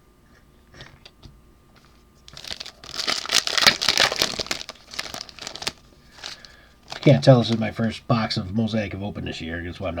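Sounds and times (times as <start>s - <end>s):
plastic wrapper crinkling: 2.3s - 7.8s.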